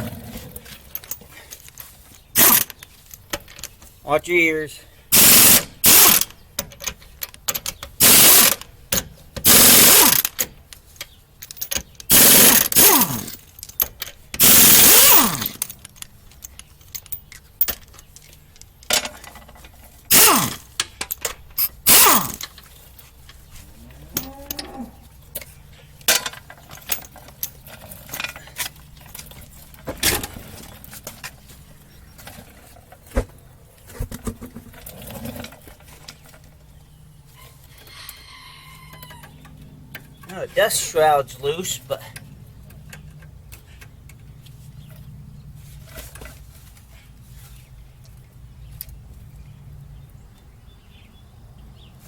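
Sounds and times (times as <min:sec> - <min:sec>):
pneumatic impact wrench hammering: 0:02.4 - 0:02.7, 0:05.1 - 0:06.7, 0:07.5 - 0:10.6, 0:11.6 - 0:13.4, 0:14.4 - 0:15.7, 0:20.1 - 0:22.5.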